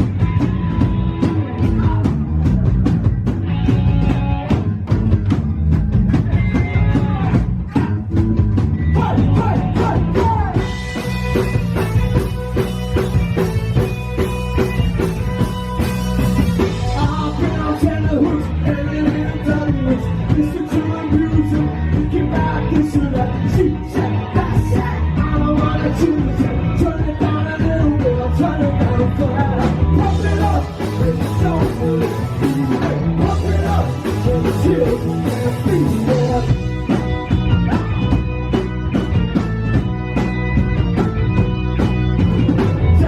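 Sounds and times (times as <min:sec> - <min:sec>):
live rock band playing: 0:00.0 - 0:43.0
person singing: 0:16.8 - 0:36.9.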